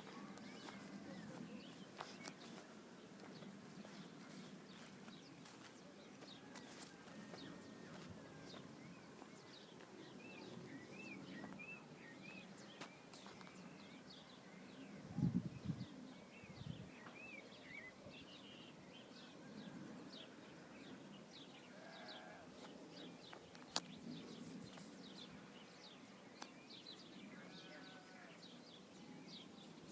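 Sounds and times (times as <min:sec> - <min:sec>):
faint bird chirping: 0:00.0 - 0:29.9
farm animal bleating: 0:21.7 - 0:22.5, 0:27.3 - 0:28.4.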